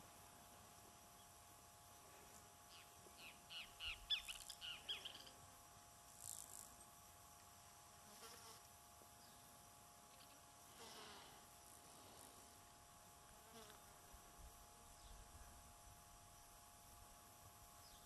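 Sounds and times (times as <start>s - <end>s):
faint steady hum: 0.0s - 18.0s
bird chirps: 2.7s - 5.3s.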